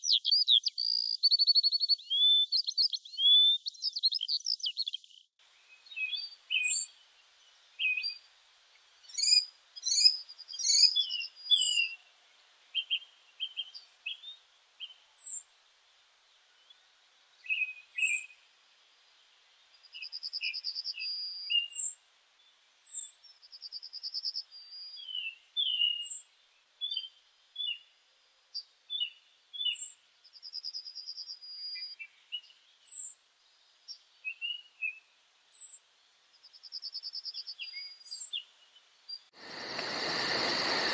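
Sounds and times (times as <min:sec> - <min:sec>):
lower bird chirps: 0:00.0 - 0:40.9
songbirds chirping: 0:00.0 - 0:40.9
bird rapid trill: 0:06.1 - 0:06.9, 0:09.1 - 0:12.0, 0:14.8 - 0:15.4, 0:20.0 - 0:22.0, 0:39.4 - 0:40.9.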